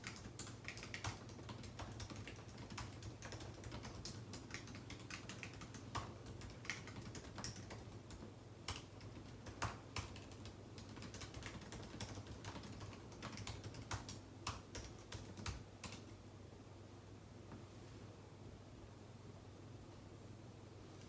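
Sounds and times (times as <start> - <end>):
keyboard typing clicks: 0.0 - 16.1.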